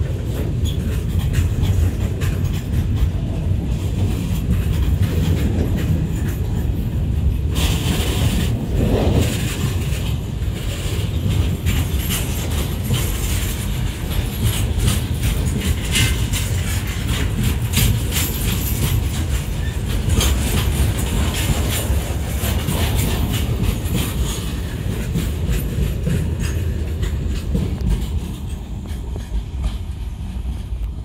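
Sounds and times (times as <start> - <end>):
freight wagons rumbling on rails: 0.0 - 31.0
wheels clicking over rail joints: 0.0 - 31.0.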